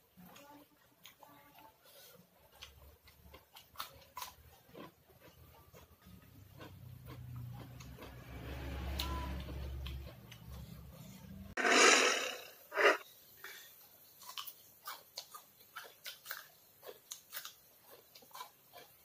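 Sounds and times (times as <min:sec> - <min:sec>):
person chewing crunchy vegetables: 0:00.0 - 0:19.0
loud rushes of noise: 0:11.6 - 0:13.0.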